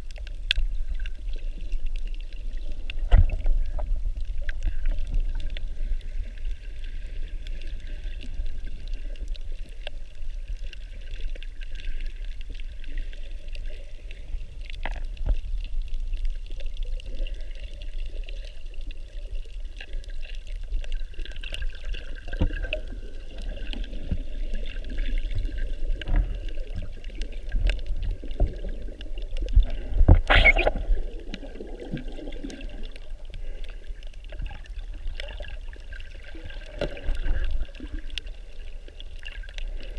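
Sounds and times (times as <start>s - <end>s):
muffled water sloshing underwater: 0.0s - 39.9s
water splash: 29.5s - 33.1s.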